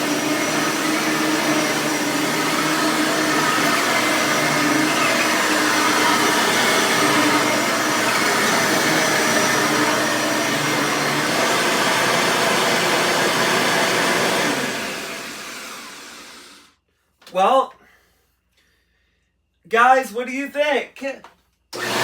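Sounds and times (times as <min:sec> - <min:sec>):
vacuum cleaner running: 0:00.0 - 0:16.7, 0:21.8 - 0:22.0.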